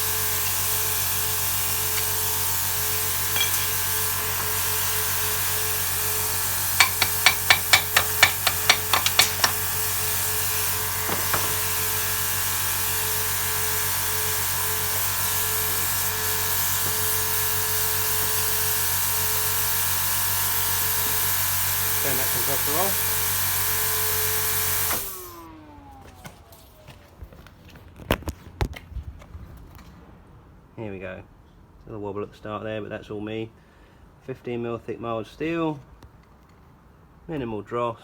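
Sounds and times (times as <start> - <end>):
compressor running: 0.0 - 26.6
sharp metal knocks: 6.8 - 9.7.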